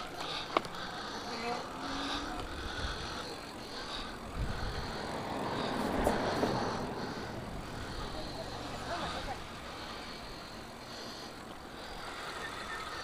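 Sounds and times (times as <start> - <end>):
bike rolling noise: 0.0 - 13.0
wind rumble: 2.4 - 9.8.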